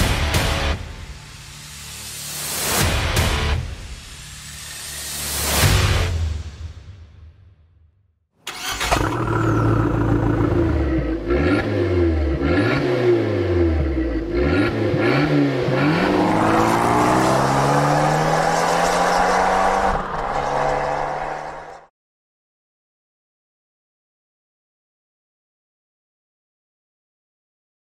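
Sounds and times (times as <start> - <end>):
car engine revving: 8.5 - 21.9.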